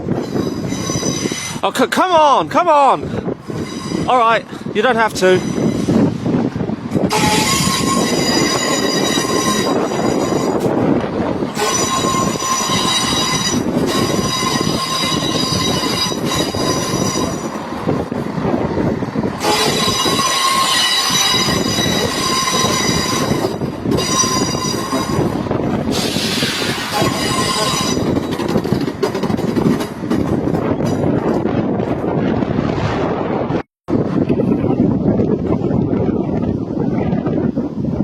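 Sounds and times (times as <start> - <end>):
train wheels squealing on rails: 0.0 - 1.7, 3.4 - 4.4, 5.2 - 6.2, 7.0 - 10.8, 11.6 - 17.8, 19.4 - 31.4
low rumble of slow train: 0.0 - 2.0, 3.0 - 38.0.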